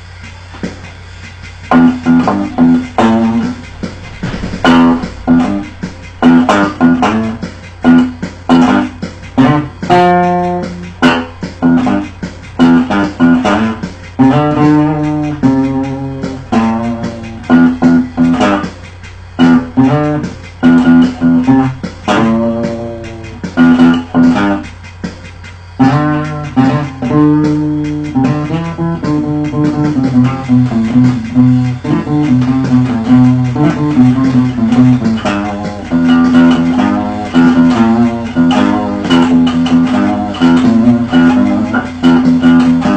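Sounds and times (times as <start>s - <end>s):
acoustic guitar plucked low notes: 1.5s - 25.2s, 25.8s - 42.9s.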